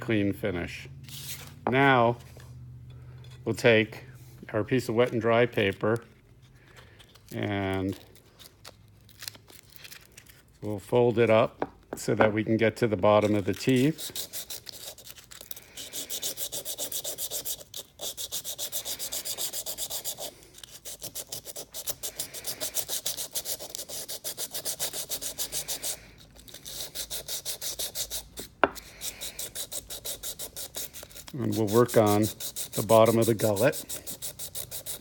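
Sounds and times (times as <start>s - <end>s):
sandpaper scrubbing on metal: 13.1s - 35.0s.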